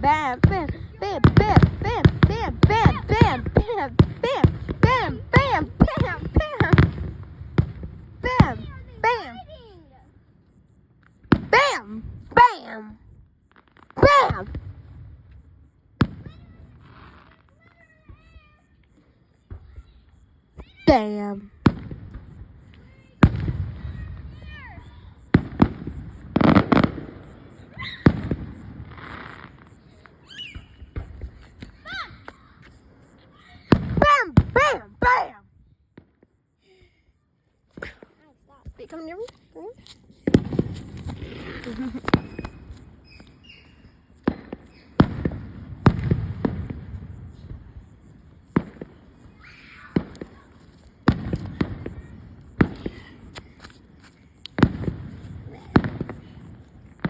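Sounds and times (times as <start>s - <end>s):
firework bangs: 0.0s - 9.2s, 11.2s - 12.6s, 16.0s - 18.4s, 20.9s - 35.3s, 40.0s - 57.0s
firework crackling: 0.0s - 9.2s, 16.0s - 17.6s, 21.6s - 31.8s, 38.8s - 57.0s.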